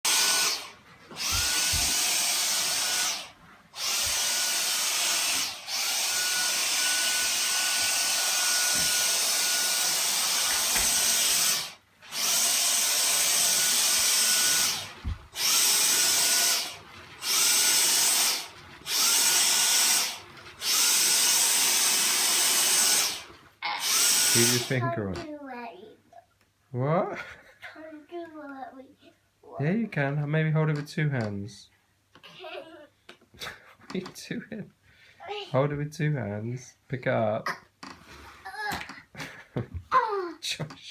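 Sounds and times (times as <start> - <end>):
vacuum cleaner motor whining: 0.1 - 24.8.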